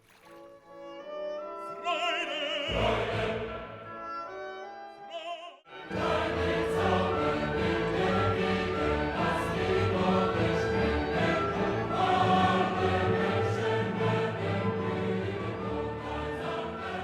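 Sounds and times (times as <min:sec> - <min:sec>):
operatic voice singing: 0:01.7 - 0:04.0, 0:05.1 - 0:07.3
choir singing: 0:02.0 - 0:04.4, 0:05.1 - 0:17.0
orchestra playing: 0:05.7 - 0:17.0.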